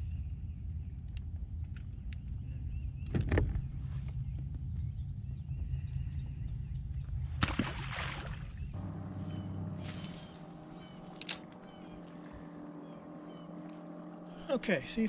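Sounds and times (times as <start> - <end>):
steady low rumble: 0.0 - 15.0
faint bird calls: 9.1 - 14.6
rustle: 9.7 - 11.5.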